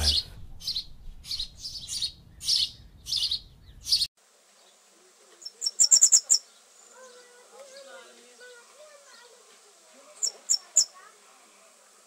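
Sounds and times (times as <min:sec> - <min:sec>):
bird warbling song: 0:00.0 - 0:04.8, 0:05.4 - 0:09.3, 0:10.1 - 0:11.0
songbirds chirping: 0:00.0 - 0:12.0.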